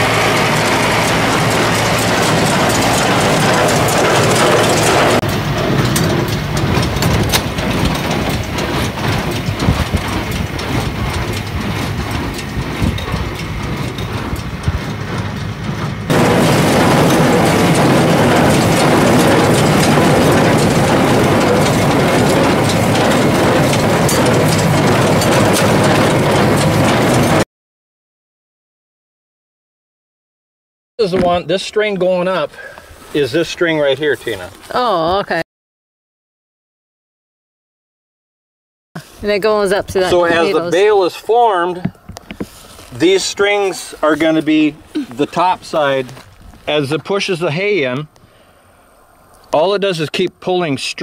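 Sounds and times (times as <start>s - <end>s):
machinery knocks: 0.0s - 27.4s
tractor and hay baler running: 0.0s - 27.4s, 31.0s - 35.0s, 39.0s - 48.6s.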